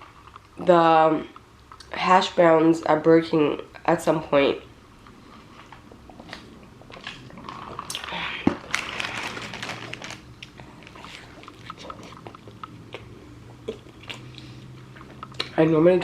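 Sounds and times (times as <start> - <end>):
person chewing food: 5.1 - 15.6
small crunches: 5.6 - 12.4
wet mouth sounds: 10.7 - 15.6.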